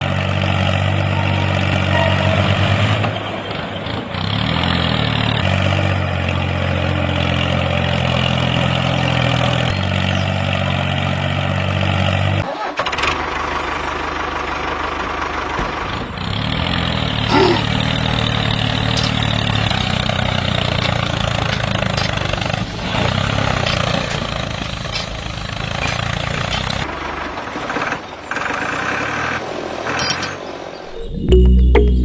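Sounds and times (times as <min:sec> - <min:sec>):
engine running with low throb: 0:30.9 - 0:32.0.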